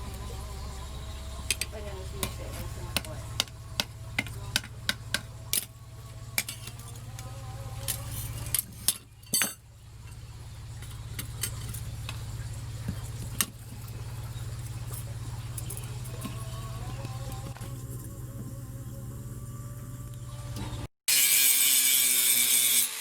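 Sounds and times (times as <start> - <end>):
low steady hum: 0.0 - 20.9
tools clinking on steel: 7.9 - 10.2.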